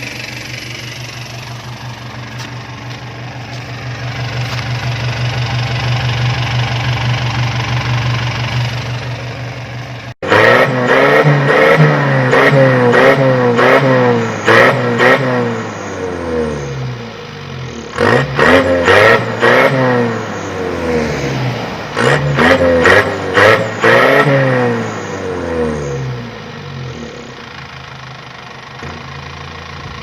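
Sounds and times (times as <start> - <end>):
engine idling: 0.0 - 10.2, 24.8 - 30.0
pickup engine revving: 0.0 - 16.8, 17.6 - 27.7.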